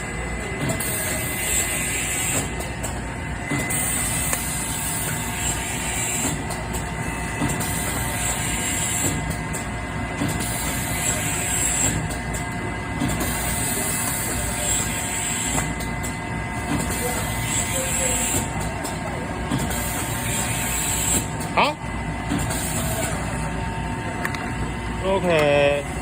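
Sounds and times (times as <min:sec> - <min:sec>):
labelling machine whirring: 0:00.0 - 0:26.0.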